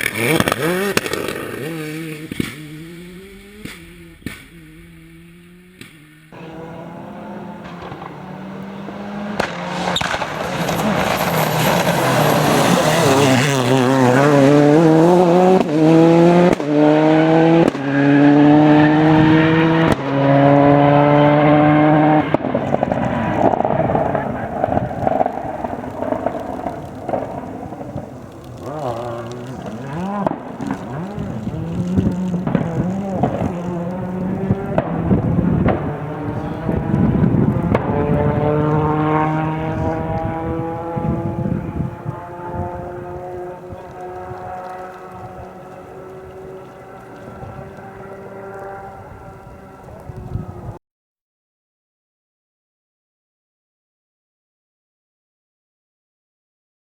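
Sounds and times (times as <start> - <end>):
rally car engine passing by: 0.0 - 50.8.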